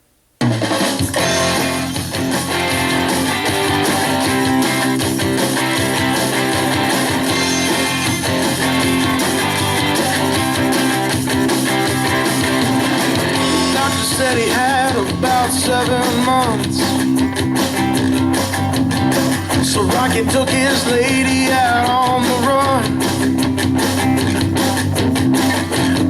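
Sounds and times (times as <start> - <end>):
rock music with strummed guitars: 0.4 - 26.0.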